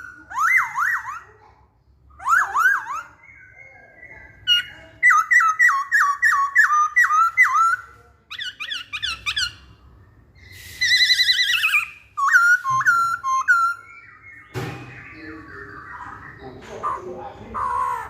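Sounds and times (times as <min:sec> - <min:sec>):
laughingthrush whistled song: 0:10.4 - 0:16.5.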